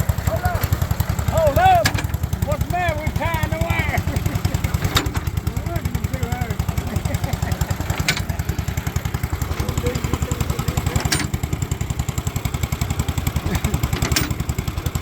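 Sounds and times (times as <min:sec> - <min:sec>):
small engine running: 0:00.0 - 0:15.0
sharp metal clank: 0:11.0 - 0:11.4.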